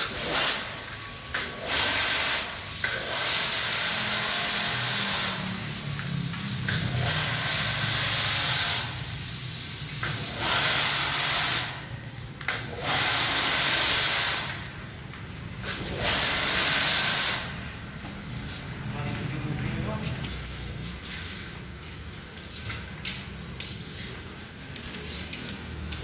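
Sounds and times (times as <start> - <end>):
pressure washer spray hissing: 0.0 - 14.7, 15.6 - 17.7.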